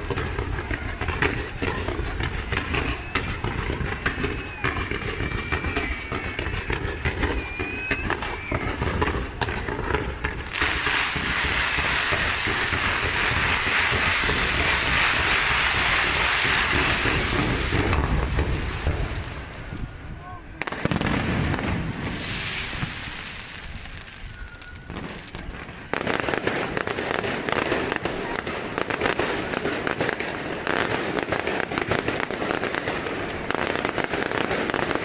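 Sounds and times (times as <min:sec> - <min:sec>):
fireworks crackling bangs: 0:00.0 - 0:35.0
fireworks whistles: 0:00.0 - 0:35.0
continuous hissing rush of comets: 0:04.6 - 0:19.4, 0:21.9 - 0:25.7.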